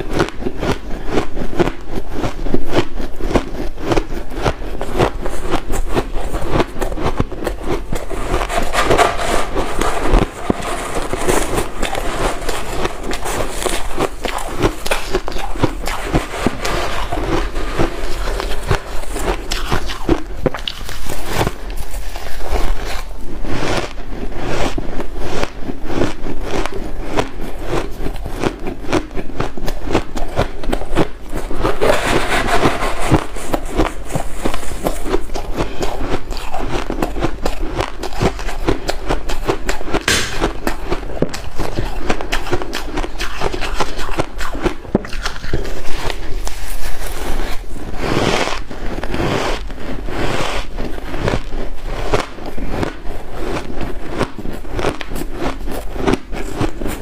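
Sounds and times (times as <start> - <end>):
chewing ice: 0.1 - 8.6, 9.6 - 32.0, 33.4 - 57.0.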